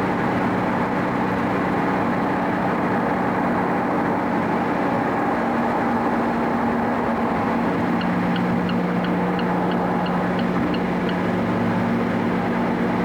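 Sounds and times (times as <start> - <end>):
car engine hum: 0.0 - 13.0
tyre and road noise: 0.0 - 13.0
light regular ticking: 8.0 - 11.2.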